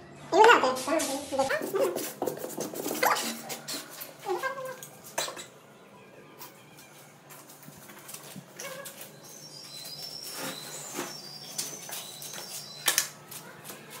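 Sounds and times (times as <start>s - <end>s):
birds chirping: 8.3s - 13.2s.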